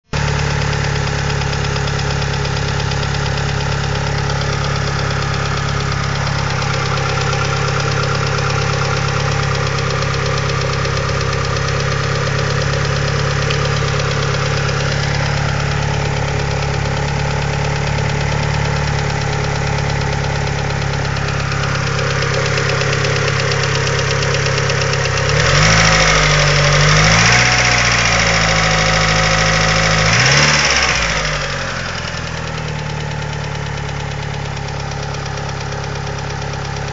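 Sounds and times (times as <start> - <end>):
car engine idling: 0.0 - 36.9
engine revving: 0.2 - 33.1.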